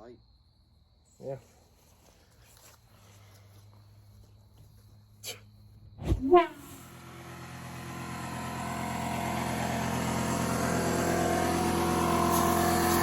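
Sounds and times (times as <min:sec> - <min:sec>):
steady machine hum: 0:06.4 - 0:13.0.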